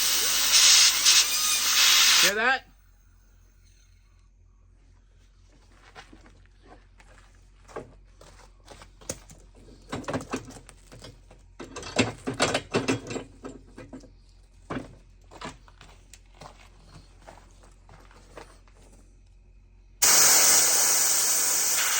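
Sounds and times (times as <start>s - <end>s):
compressed air blasts: 0.0s - 2.3s, 20.0s - 21.9s.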